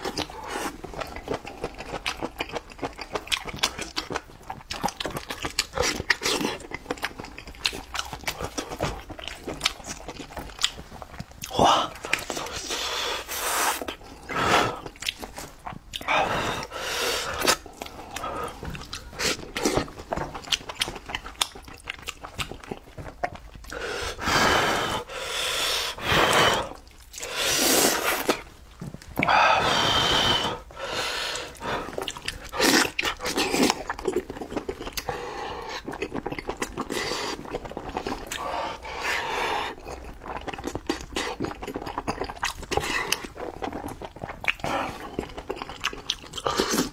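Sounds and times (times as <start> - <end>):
wet chewing and smacking: 0.0 - 24.2, 25.0 - 29.4, 30.3 - 46.9.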